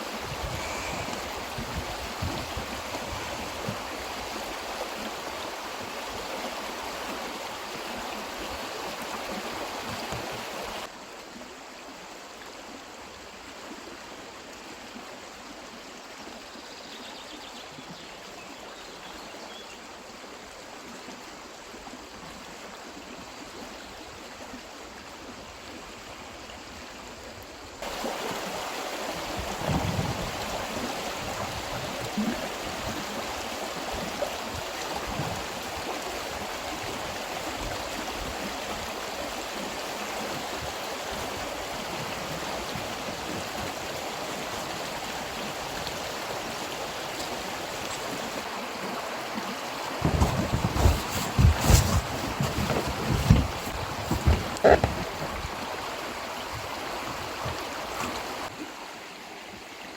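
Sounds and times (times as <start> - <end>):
stream running over its bed: 0.0 - 59.9
dull thumps: 50.0 - 55.6.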